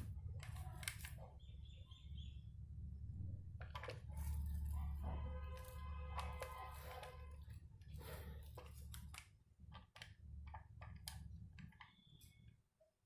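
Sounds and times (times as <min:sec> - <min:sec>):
small parts clicking and tapping: 0:00.0 - 0:01.2, 0:05.5 - 0:12.6.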